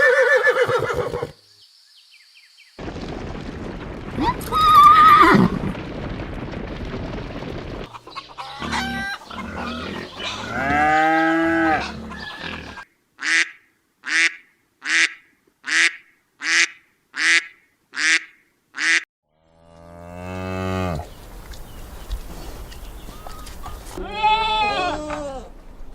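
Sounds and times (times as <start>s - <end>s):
farm bird calling: 7.9s - 19.0s, 20.7s - 24.9s.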